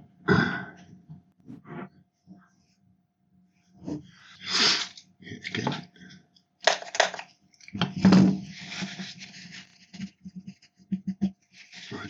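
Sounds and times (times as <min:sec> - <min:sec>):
scrape and rustle: 0:07.8 - 0:12.0.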